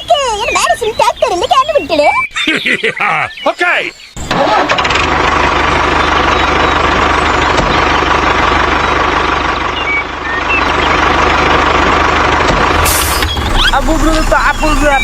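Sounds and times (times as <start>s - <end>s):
heavy vehicle engine idling: 4.2s - 15.0s.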